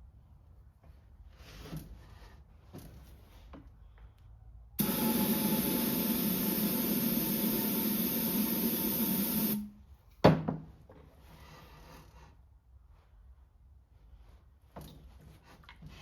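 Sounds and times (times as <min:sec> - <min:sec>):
pressurized spray hissing: 0:04.8 - 0:09.7.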